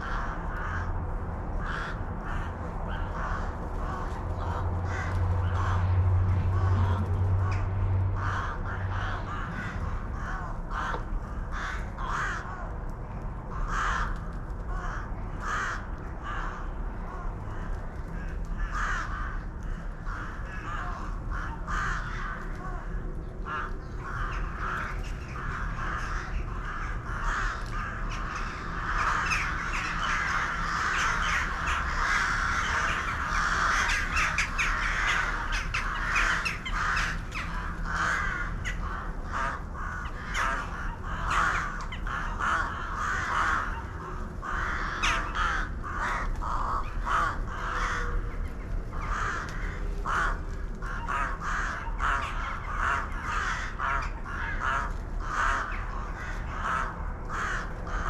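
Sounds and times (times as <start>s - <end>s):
flock of birds calling: 0.0s - 58.0s.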